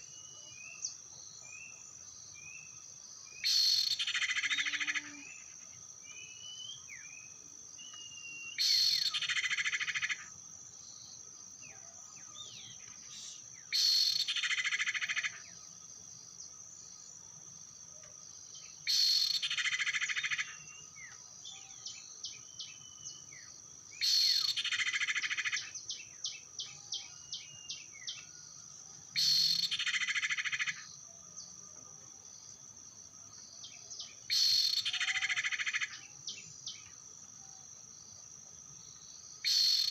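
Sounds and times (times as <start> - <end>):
high insect drone: 0.0 - 39.9
small bird chirps: 3.4 - 10.3, 11.7 - 15.6, 18.6 - 28.4, 29.1 - 31.6, 33.4 - 37.6, 39.4 - 39.9.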